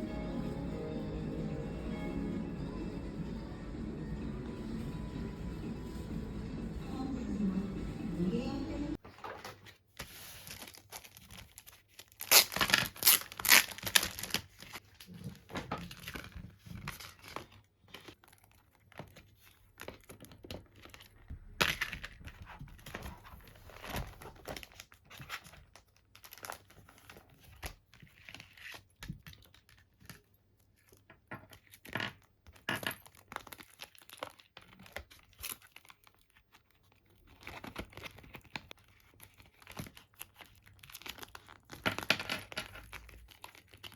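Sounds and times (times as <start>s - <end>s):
plastic packaging crinkling: 10.3s - 27.4s, 32.6s - 43.9s.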